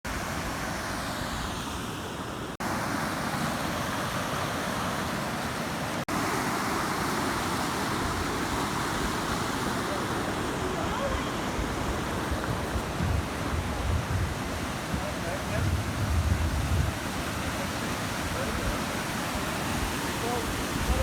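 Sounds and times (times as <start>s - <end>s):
water noise: 0.0s - 21.0s
rushing wind: 6.1s - 21.0s
wind buffeting microphone: 10.2s - 21.0s.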